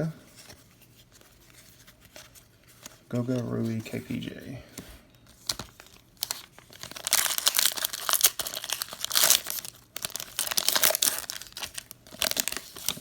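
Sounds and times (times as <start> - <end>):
plastic wrapper tearing and crinkling: 5.3 - 13.0.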